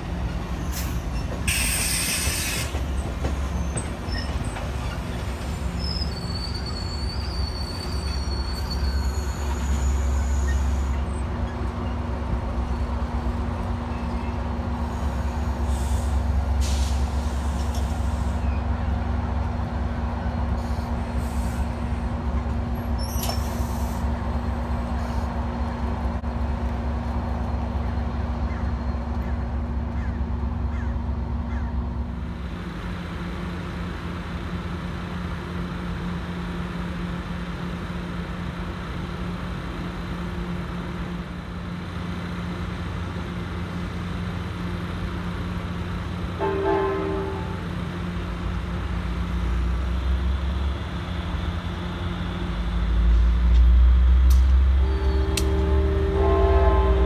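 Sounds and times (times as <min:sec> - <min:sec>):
diesel locomotives idling: 0:00.0 - 0:57.0
short horn toot: 0:54.8 - 0:57.0.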